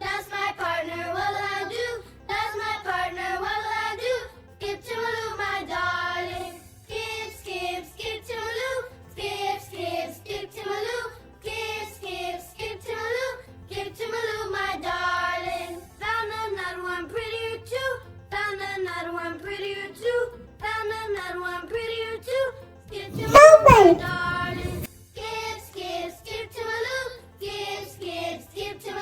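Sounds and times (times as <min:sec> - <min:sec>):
child-like voice singing: 0:23.1 - 0:24.8.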